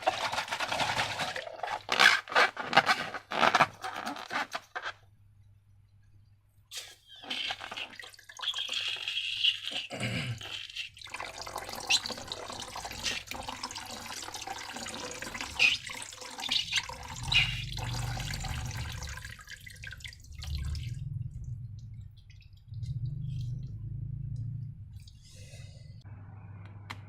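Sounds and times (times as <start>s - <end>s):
slime pouring and squelching: 0.0s - 4.8s.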